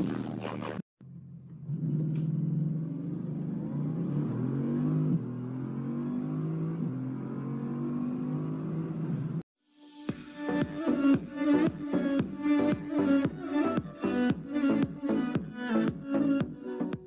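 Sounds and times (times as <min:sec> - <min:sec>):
car engine accelerating hard: 0:01.1 - 0:09.4.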